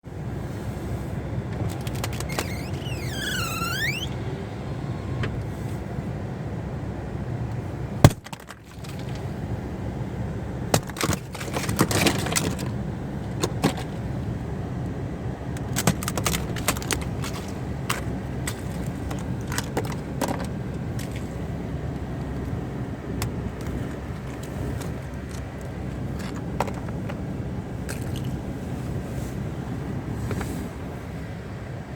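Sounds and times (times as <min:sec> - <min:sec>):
steady low rumble: 0:00.0 - 0:10.7, 0:12.2 - 0:31.9
sharp loud ice crack: 0:08.0 - 0:08.6.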